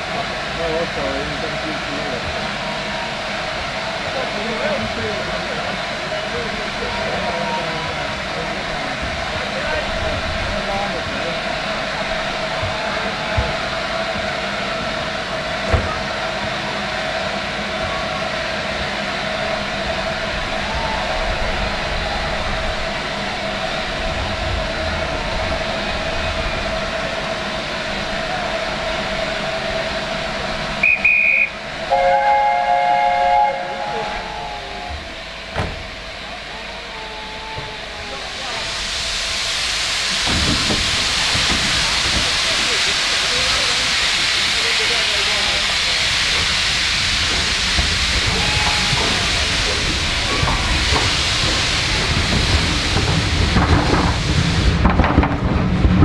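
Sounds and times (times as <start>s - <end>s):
train rumble and hiss: 0.0s - 56.0s
steam locomotive whistle toot: 30.8s - 35.1s, 48.2s - 49.6s.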